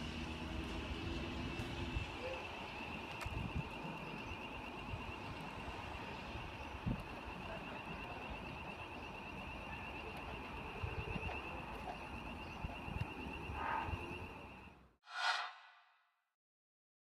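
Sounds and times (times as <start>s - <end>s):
wind noise: 3.1s - 3.9s.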